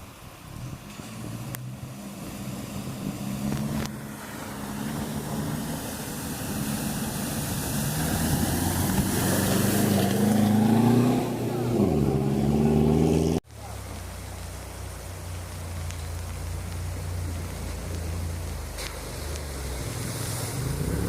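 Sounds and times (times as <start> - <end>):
racing engine approaching: 1.3 - 13.4.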